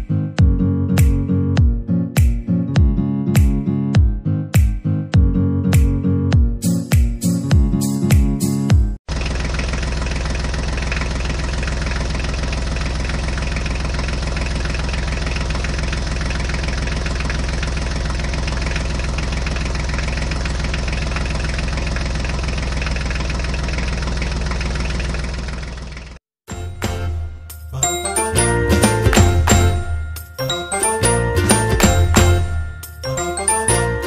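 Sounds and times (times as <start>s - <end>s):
tractor engine idling: 9.1s - 34.0s.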